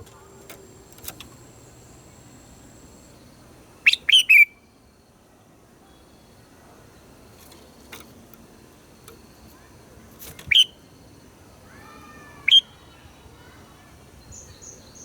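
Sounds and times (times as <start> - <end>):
bird calling sharp notes: 3.8 - 4.6, 10.5 - 10.8
faint gliding whistles: 3.9 - 4.7, 10.5 - 10.8.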